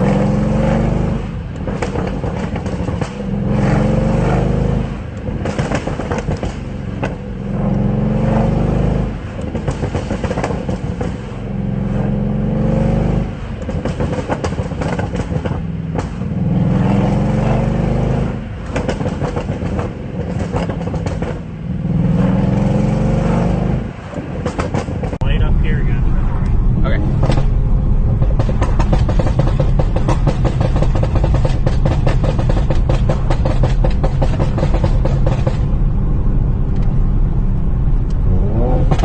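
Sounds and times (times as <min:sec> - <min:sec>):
car engine revving: 0:00.0 - 0:39.0
exhaust cracks: 0:01.3 - 0:07.8, 0:24.1 - 0:39.0.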